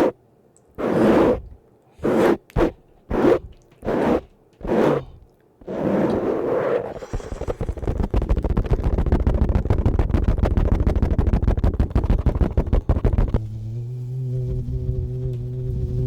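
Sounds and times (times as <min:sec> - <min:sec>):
microphone brushed rapidly: 0:00.8 - 0:13.5
steady low droning tone: 0:13.4 - 0:16.0.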